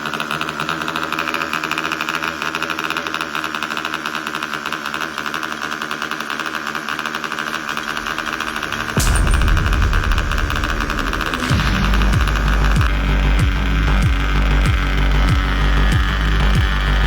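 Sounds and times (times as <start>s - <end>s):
loud low rumble: 7.7s - 15.8s.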